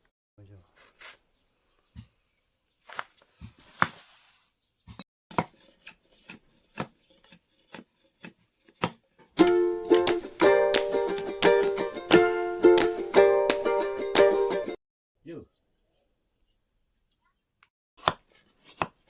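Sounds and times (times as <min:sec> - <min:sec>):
blade chopping bamboo: 0:05.3 - 0:14.4, 0:18.0 - 0:19.0
plucked string music: 0:09.4 - 0:14.8.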